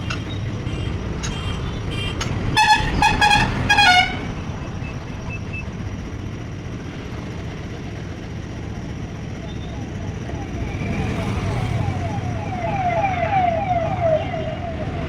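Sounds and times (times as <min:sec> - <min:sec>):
vehicle horn honking: 0:00.0 - 0:04.4.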